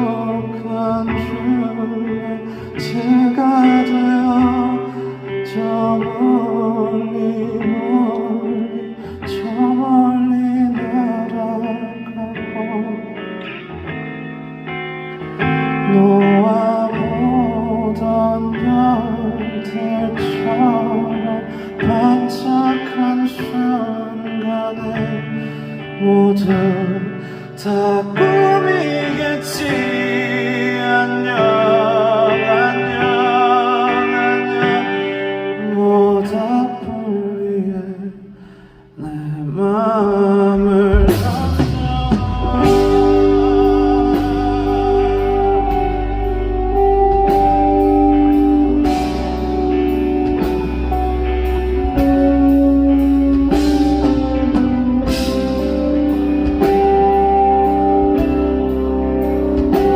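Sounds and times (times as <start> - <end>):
wordless singing with vibrato: 0.0 - 59.9
soft accompaniment: 39.6 - 59.9
band playing drums bass guitar: 40.9 - 59.9.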